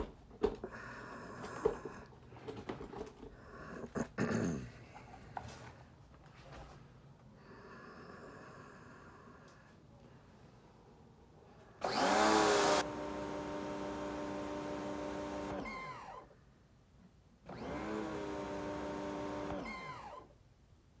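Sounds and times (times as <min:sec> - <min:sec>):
pressure washer humming: 0:11.8 - 0:15.7, 0:17.5 - 0:19.7
motor winding down squeal: 0:11.8 - 0:16.2, 0:17.5 - 0:20.3.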